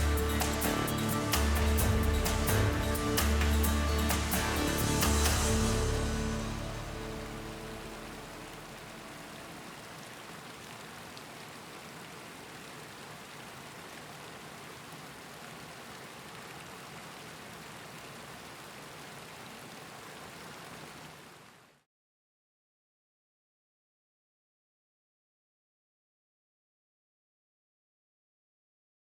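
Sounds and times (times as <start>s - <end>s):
music: 0.0s - 9.1s
flowing river water: 0.0s - 21.8s.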